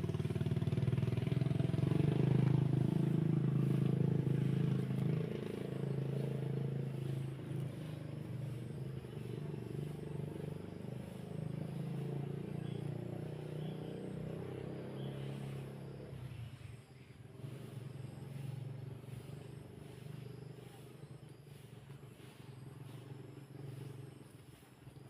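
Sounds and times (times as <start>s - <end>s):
small engine humming: 0.0s - 25.0s.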